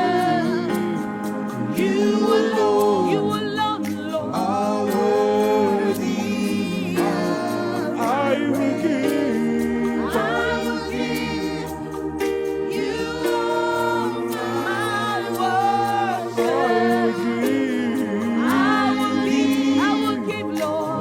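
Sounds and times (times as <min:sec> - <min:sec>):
sustained keyboard chords: 0:00.0 - 0:21.0
voices singing without words: 0:00.0 - 0:21.0.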